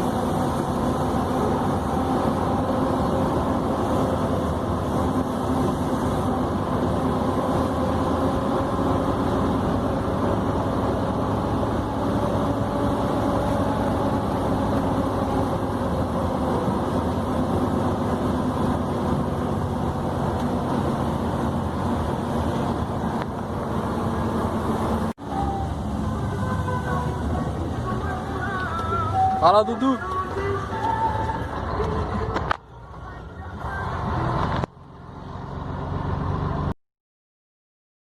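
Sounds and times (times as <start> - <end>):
diesel truck engine running: 0.0 - 36.8.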